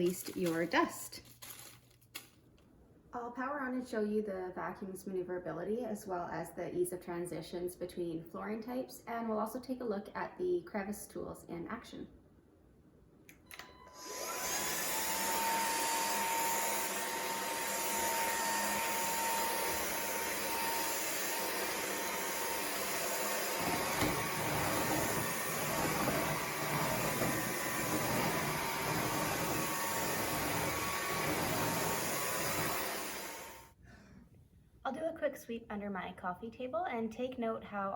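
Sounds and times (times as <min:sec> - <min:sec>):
stick vacuum running: 0:13.5 - 0:33.7.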